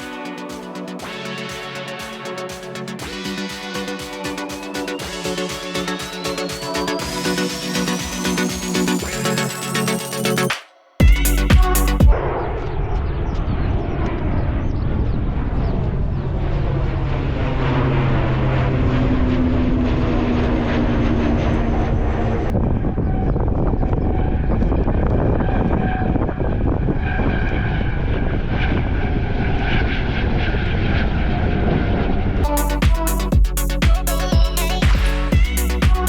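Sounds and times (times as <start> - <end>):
airliner engine roar on takeoff: 12.2 - 32.4.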